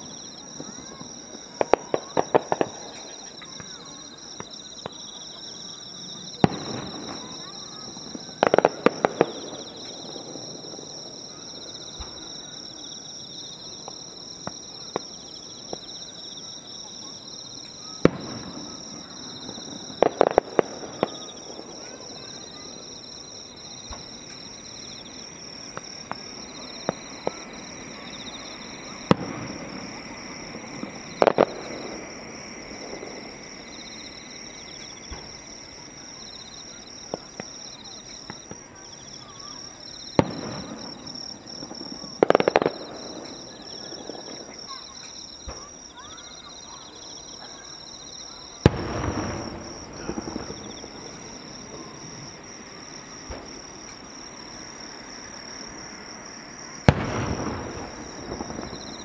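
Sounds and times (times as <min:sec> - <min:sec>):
fireworks bursting: 0:00.0 - 0:59.0
insects chirping: 0:00.0 - 0:59.0
small fireworks pops: 0:00.0 - 0:59.0.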